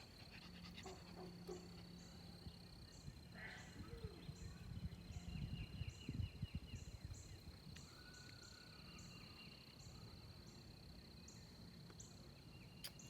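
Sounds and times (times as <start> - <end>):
low wind rumble: 0.0 - 10.4.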